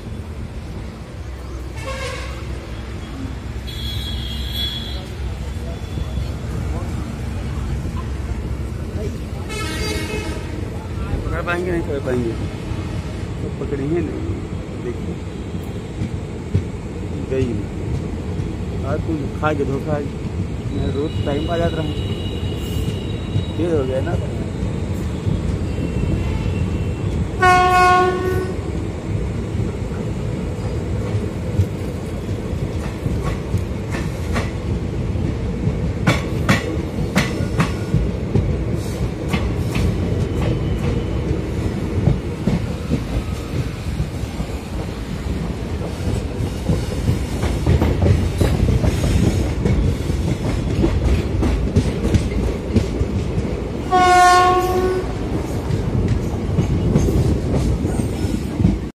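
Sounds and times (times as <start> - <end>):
train rumble: 0.0 - 58.9
train horn blast: 1.8 - 2.5, 3.6 - 5.1, 9.5 - 10.6, 27.4 - 28.6, 53.9 - 55.3.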